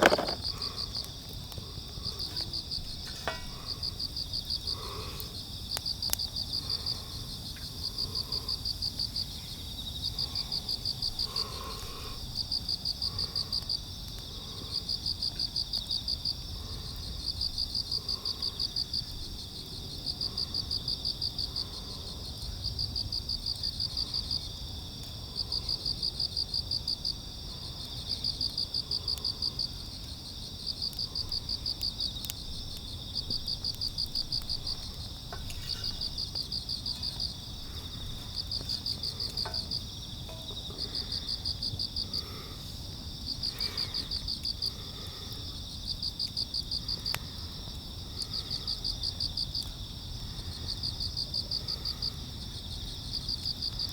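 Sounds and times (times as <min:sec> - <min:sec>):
cricket chirping: 0:00.0 - 0:53.9
insects trilling: 0:00.0 - 0:53.9.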